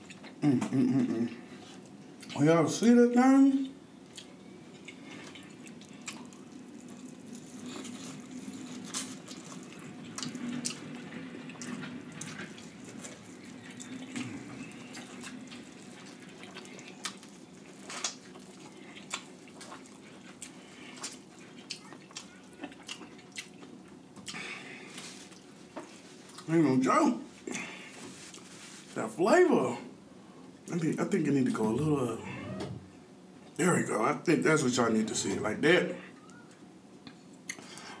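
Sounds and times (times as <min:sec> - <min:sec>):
low steady hum: 0:00.0 - 0:38.0
wet chewing and lip-smacking: 0:04.1 - 0:26.5.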